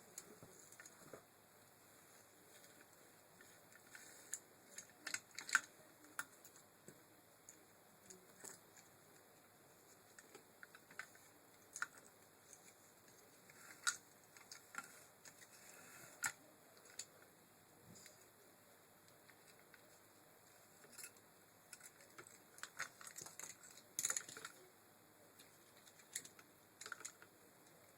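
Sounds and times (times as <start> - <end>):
small parts clicking: 25.7 - 27.3.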